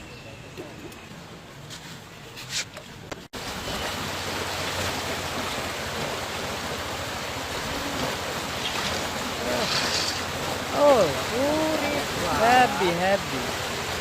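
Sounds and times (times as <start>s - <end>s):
floodwater rushing: 3.4s - 14.0s.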